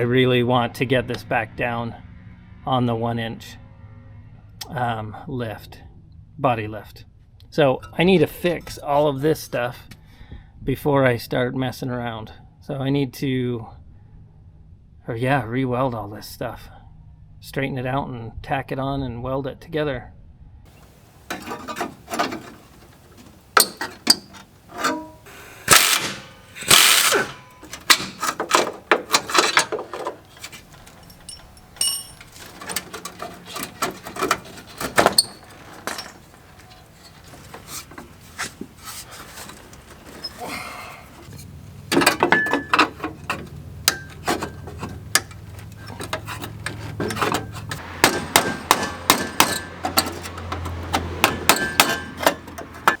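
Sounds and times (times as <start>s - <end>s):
hand tool noise: 20.7s - 53.0s
hammer strikes on steel: 47.9s - 50.3s, 51.0s - 53.0s.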